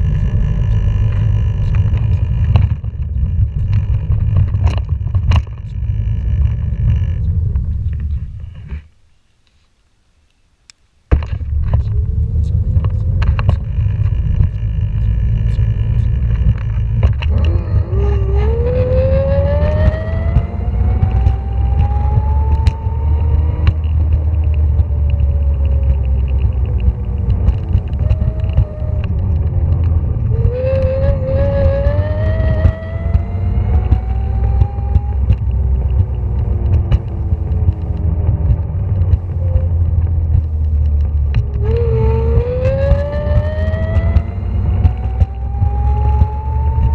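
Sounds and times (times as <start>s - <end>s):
loud steady rumble of motion: 0.0s - 8.9s, 11.1s - 46.9s
electric motor whining: 14.1s - 46.9s.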